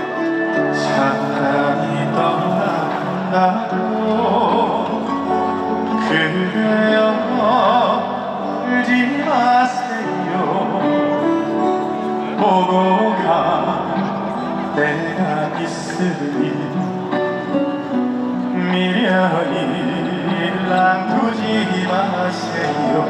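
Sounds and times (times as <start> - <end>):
live band playing slow ballad: 0.0 - 23.0.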